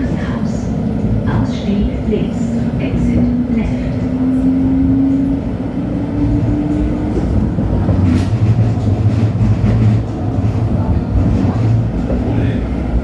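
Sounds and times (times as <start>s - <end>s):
light-rail car drive whine: 0.0s - 13.0s.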